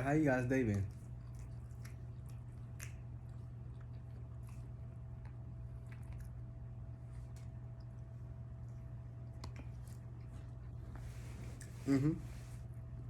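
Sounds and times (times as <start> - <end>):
eating and food handling: 0.0 - 13.0
steady low hum: 0.0 - 13.0.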